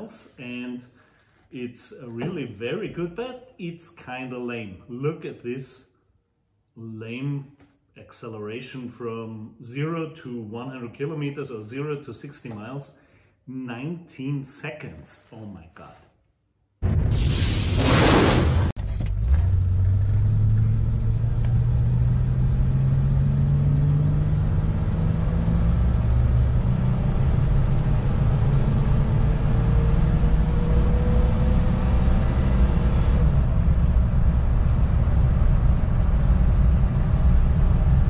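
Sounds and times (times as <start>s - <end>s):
burst of noise: 16.8s - 19.1s
car engine accelerating: 18.0s - 38.0s.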